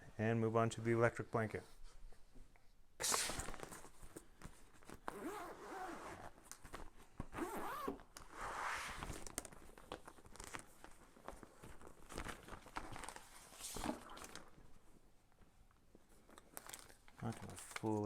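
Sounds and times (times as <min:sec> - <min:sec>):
plastic packaging rustling: 0:09.1 - 0:14.6, 0:16.3 - 0:18.0.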